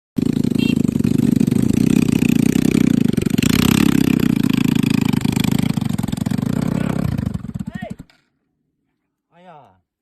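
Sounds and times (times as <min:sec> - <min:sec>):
motorcycle engine running: 0:00.2 - 0:08.1.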